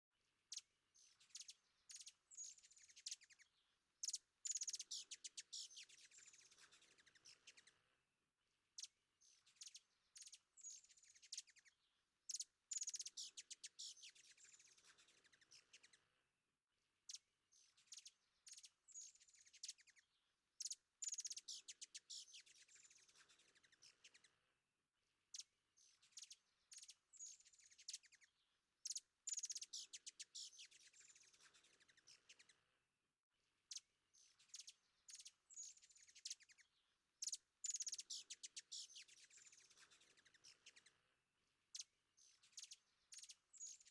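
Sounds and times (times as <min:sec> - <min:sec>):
birds chirping and trilling: 0:00.5 - 0:07.8, 0:25.3 - 0:32.7, 0:33.7 - 0:41.1, 0:41.7 - 0:43.9.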